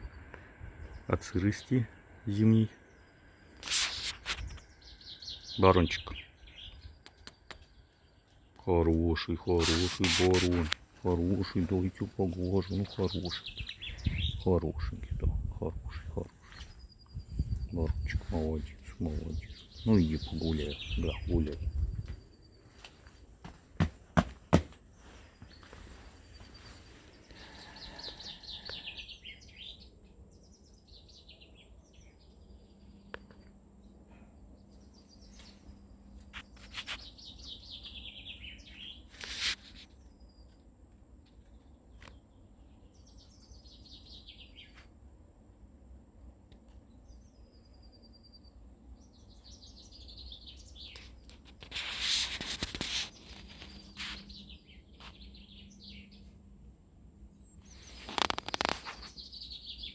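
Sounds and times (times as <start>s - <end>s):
songbird singing: 0.0s - 59.9s
rustling noise: 3.6s - 4.7s, 9.6s - 13.8s, 18.1s - 27.3s, 36.2s - 37.2s, 39.1s - 39.9s, 50.9s - 55.3s, 57.6s - 59.3s.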